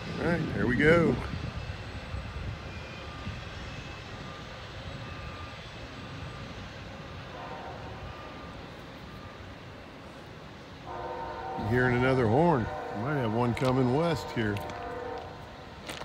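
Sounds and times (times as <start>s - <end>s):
freight train rumbling on rails: 0.0s - 16.0s
distant train horn: 7.0s - 9.4s, 10.8s - 16.0s.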